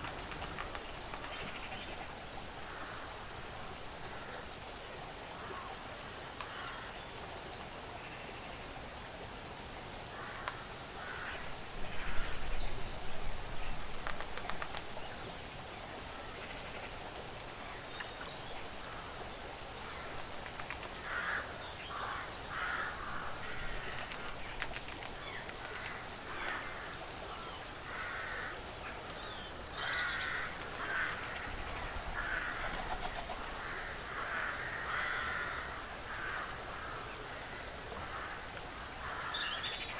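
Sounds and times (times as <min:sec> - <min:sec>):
sharp clicks: 0:00.0 - 0:01.5, 0:20.2 - 0:21.1, 0:23.7 - 0:26.6, 0:30.6 - 0:31.5
rustle: 0:00.0 - 0:39.9
steady hiss: 0:09.3 - 0:39.9
harsh crow-like calls: 0:10.1 - 0:12.4, 0:21.0 - 0:24.3, 0:25.6 - 0:27.0, 0:27.8 - 0:28.6, 0:29.8 - 0:39.4.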